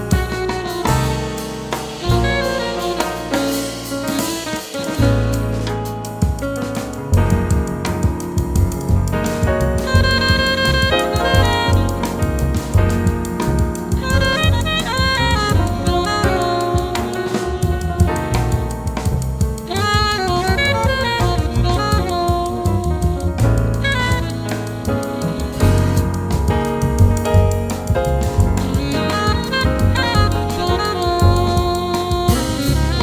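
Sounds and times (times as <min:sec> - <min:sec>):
alto saxophone melody: 0:00.0 - 0:33.0
drum kit with ride cymbal: 0:00.0 - 0:33.0
piano: 0:00.0 - 0:33.0
upright bass: 0:00.0 - 0:33.0.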